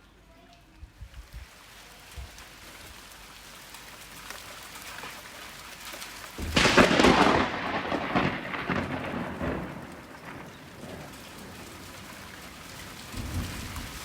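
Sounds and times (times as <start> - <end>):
rain hissing: 1.0 - 14.0
thunderclap rumbling: 6.4 - 14.0.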